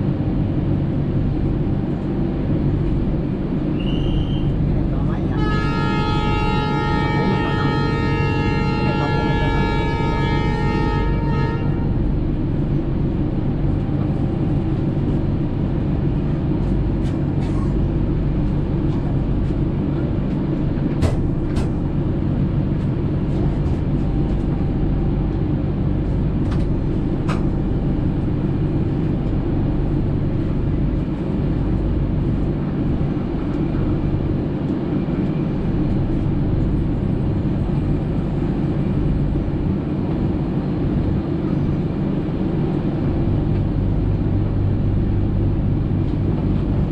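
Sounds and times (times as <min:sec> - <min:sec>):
train rumbling on track: 0:00.0 - 0:46.9.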